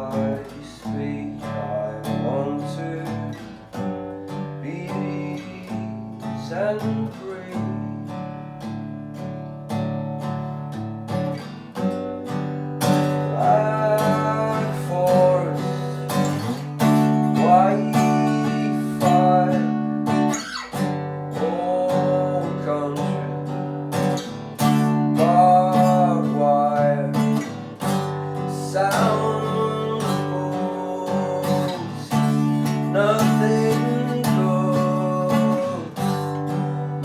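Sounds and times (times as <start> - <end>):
acoustic guitar strumming chords: 0.0 - 37.0
wordless melody line: 12.8 - 20.4.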